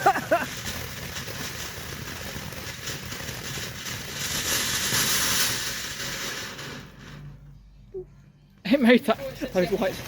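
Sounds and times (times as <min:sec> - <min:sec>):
firework fountain hissing: 0:00.0 - 0:07.4.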